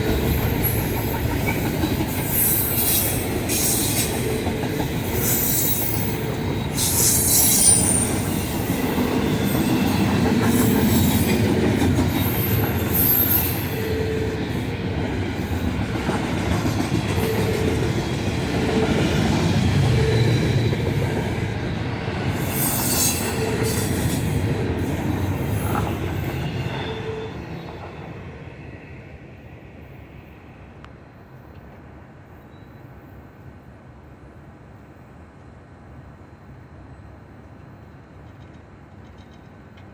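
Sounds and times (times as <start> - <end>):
train wheels rumbling on rails: 0.0 - 30.0, 37.4 - 39.9
high wheel squeal: 0.1 - 11.5, 12.1 - 14.4, 22.3 - 27.8.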